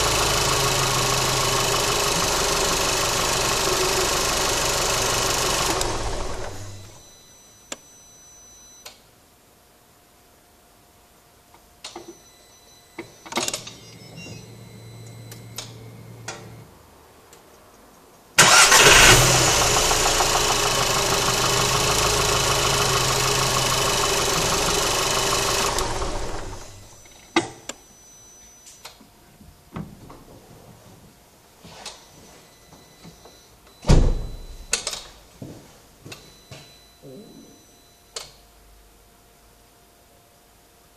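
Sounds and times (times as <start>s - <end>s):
car engine starting and running: 0.0s - 7.0s, 18.4s - 27.0s.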